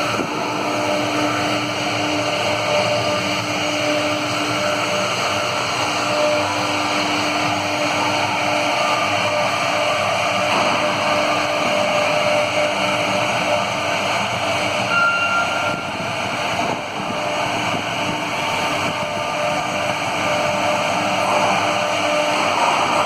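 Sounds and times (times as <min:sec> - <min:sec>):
cnc router machining: 0:00.0 - 0:23.0
brief higher whine: 0:14.8 - 0:16.1.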